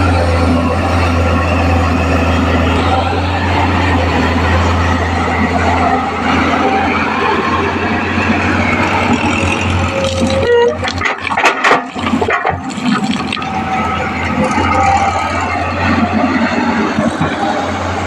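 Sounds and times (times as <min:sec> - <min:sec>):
diesel engine humming: 0:00.0 - 0:18.0
knocks and clatter: 0:09.0 - 0:15.6.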